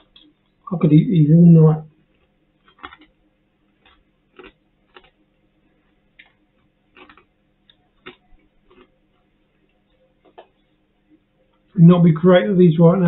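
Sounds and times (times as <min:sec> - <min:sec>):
crunching pork scratchings: 0:01.9 - 0:10.6.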